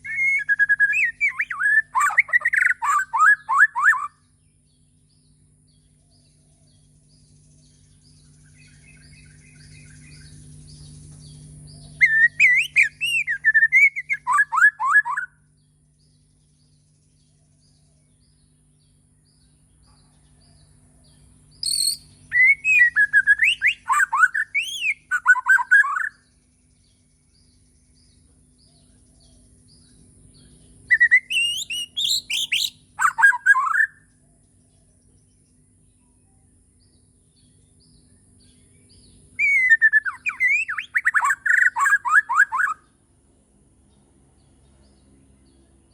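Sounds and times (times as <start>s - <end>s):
bird singing whistled phrases: 0.0s - 4.3s, 11.9s - 15.4s, 21.6s - 26.3s, 30.9s - 34.1s, 39.4s - 42.9s
steady low hum: 0.0s - 42.0s, 42.7s - 45.9s.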